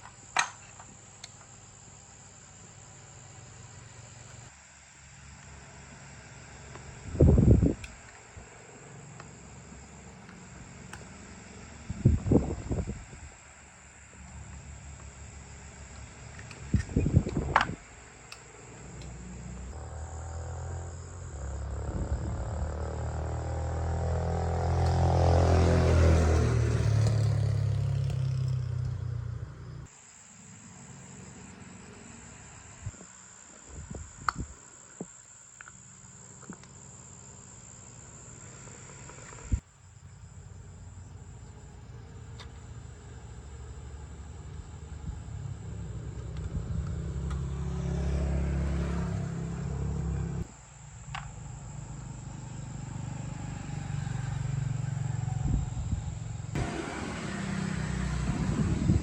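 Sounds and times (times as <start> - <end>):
insects chirring: 0.0 - 59.0
engine revving: 18.8 - 29.9, 43.2 - 50.5, 51.7 - 59.0.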